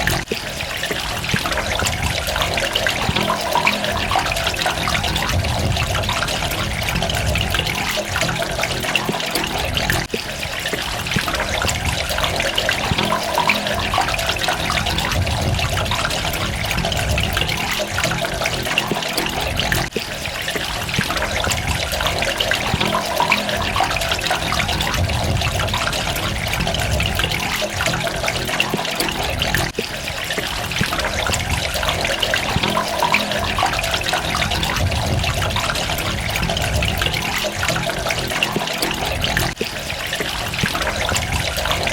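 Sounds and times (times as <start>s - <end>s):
water splashing and trickling: 0.0s - 41.9s.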